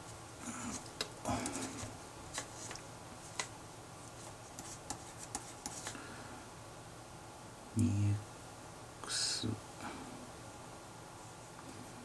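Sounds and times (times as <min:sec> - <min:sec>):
pen scratching on paper: 0:04.2 - 0:05.9.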